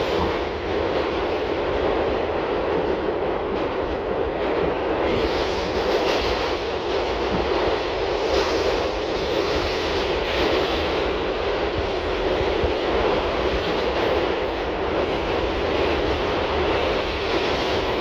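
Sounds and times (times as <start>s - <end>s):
subway wheels rumbling on rail: 0.0s - 18.0s.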